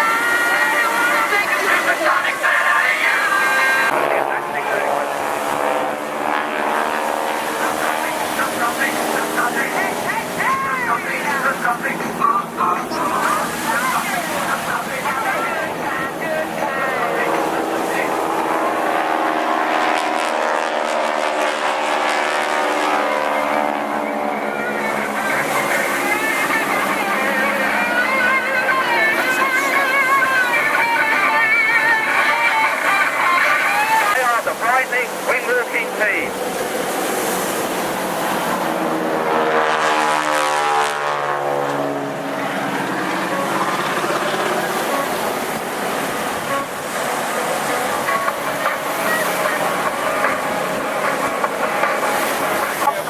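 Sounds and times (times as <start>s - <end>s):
propeller aircraft engine droning: 0.0s - 53.0s
music: 24.5s - 34.2s, 46.4s - 53.0s.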